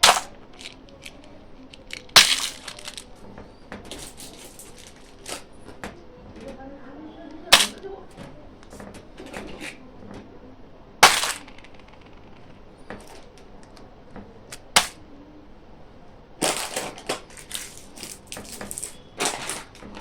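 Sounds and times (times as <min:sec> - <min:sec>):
candy packaging snapping: 0:00.0 - 0:03.2, 0:03.9 - 0:05.5, 0:07.5 - 0:07.8, 0:11.0 - 0:13.8, 0:14.5 - 0:15.0, 0:16.4 - 0:20.0
packaging crinkling: 0:00.0 - 0:03.2, 0:03.9 - 0:05.4, 0:16.4 - 0:20.0.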